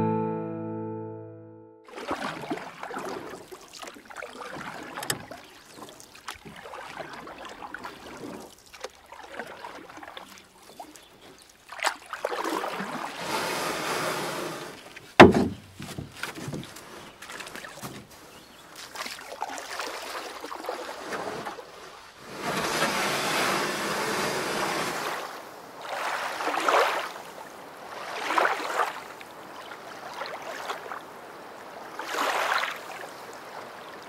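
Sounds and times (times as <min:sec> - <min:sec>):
paddle splashing in water: 0:01.9 - 0:34.0
knocks on canoe: 0:15.2 - 0:16.8.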